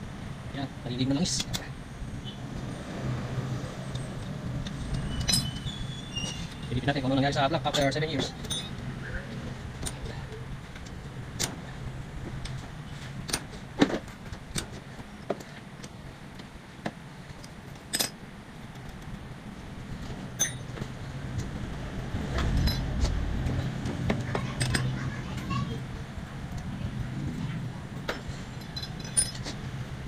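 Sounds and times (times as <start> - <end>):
steady low hum: 0.0 - 30.0
metallic clinks of hand tools: 4.9 - 5.8, 7.6 - 8.8, 20.4 - 20.8, 28.6 - 29.6.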